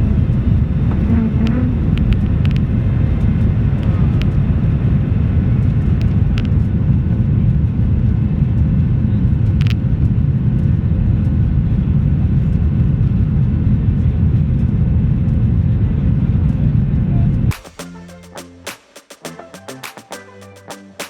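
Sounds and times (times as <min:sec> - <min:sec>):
faint steady hum: 0:00.0 - 0:10.0
jet engine rumble in cabin: 0:00.0 - 0:17.5.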